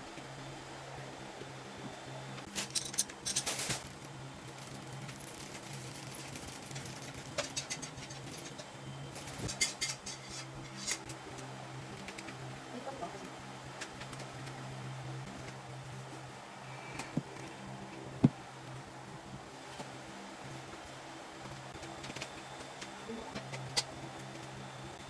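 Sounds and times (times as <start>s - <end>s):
steady low hum: 0.0s - 25.0s
rustling and scraping of packaging: 2.4s - 11.1s.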